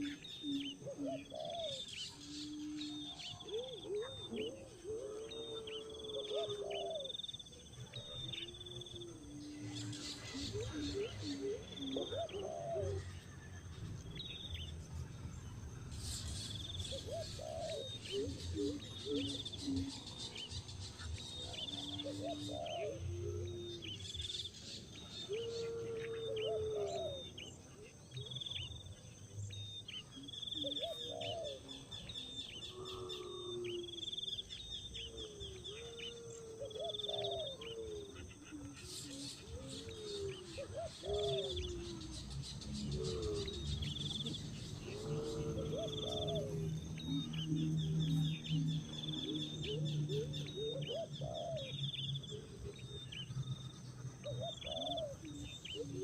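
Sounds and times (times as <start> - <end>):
birds chirping: 0.0 - 56.0
gliding bird calls: 15.9 - 56.0.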